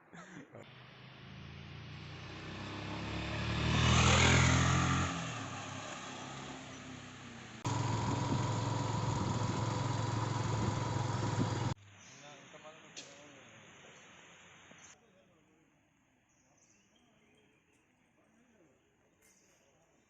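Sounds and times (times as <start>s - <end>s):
motorcycle passing by: 0.8s - 11.8s
motorcycle engine running steadily: 7.6s - 11.8s
thin steady whine: 7.7s - 11.8s.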